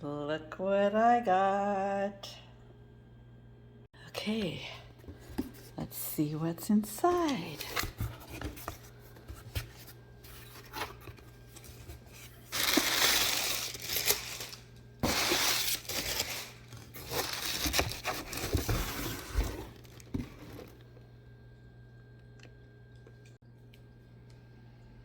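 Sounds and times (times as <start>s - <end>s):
packaging rustling: 7.4s - 20.8s
packaging ripping: 12.4s - 20.2s.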